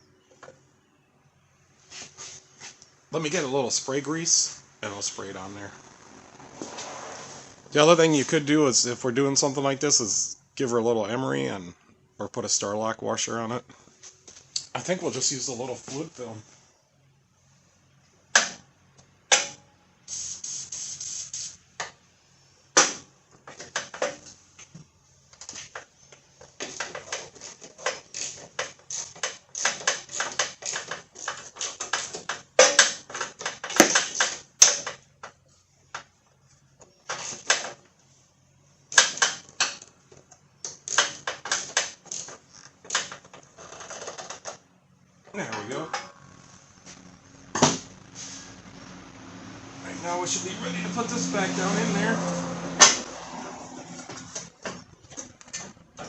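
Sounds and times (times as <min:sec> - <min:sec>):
aerosol spray hiss: 0:20.1 - 0:21.6, 0:48.1 - 0:48.6.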